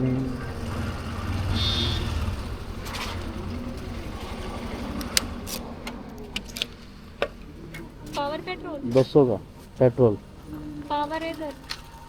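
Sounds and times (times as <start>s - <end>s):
motorcycle engine running: 0.0s - 6.0s.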